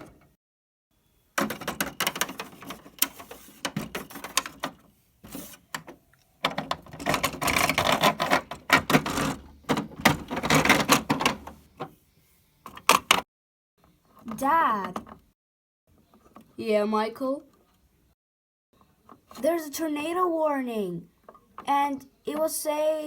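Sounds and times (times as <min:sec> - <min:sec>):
plastic toy figures clicking and tapping: 0:01.4 - 0:04.8, 0:05.7 - 0:11.9, 0:12.7 - 0:13.2.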